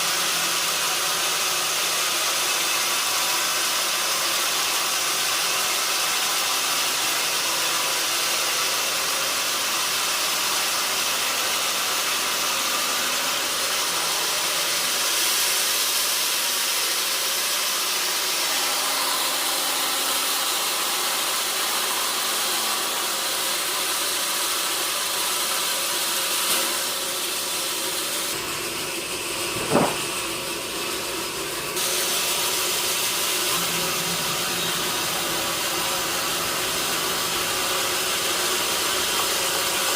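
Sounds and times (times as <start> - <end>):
saw cutting through log: 0.0 - 39.9
sharp knock: 29.5 - 30.2.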